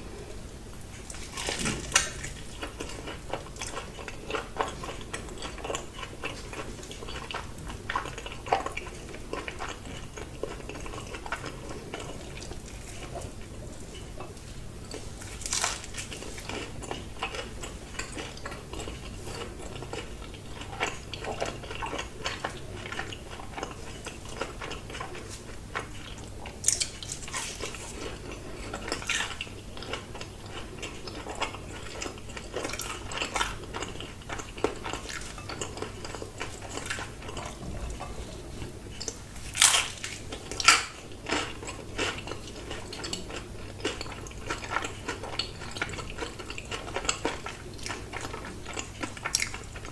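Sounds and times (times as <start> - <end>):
chewing and biting food: 1.0 - 49.9.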